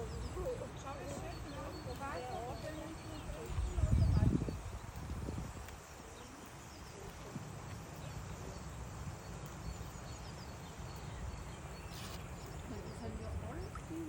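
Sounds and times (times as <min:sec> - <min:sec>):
faint bird chirps: 0:00.0 - 0:14.0
wind rumble on microphone: 0:01.4 - 0:08.4.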